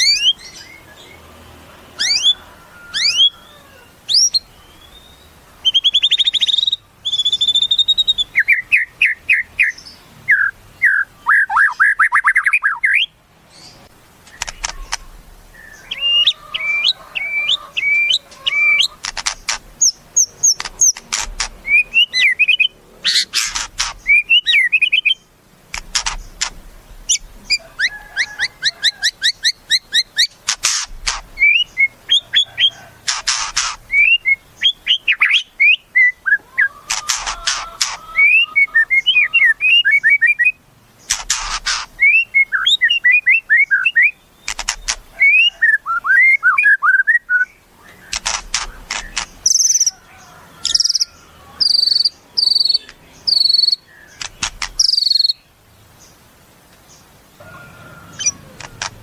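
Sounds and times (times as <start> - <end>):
songbird singing varied song: 0.0 - 1.4, 2.0 - 59.0.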